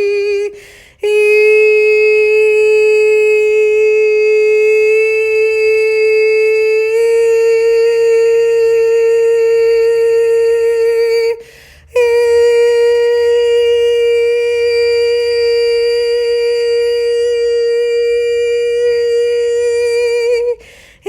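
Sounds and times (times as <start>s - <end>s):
person breathing: 0.5s - 1.0s, 11.4s - 11.9s, 20.6s - 21.0s.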